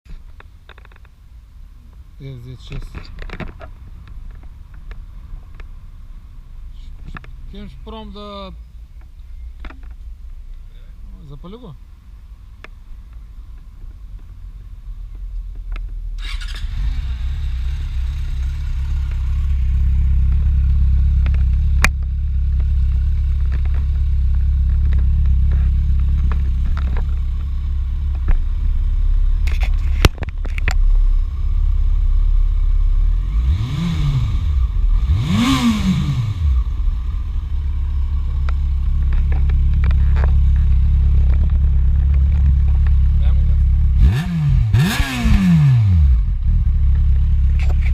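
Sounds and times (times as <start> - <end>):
motorcycle engine idling: 16.2 - 33.2, 36.4 - 44.0, 46.2 - 47.9.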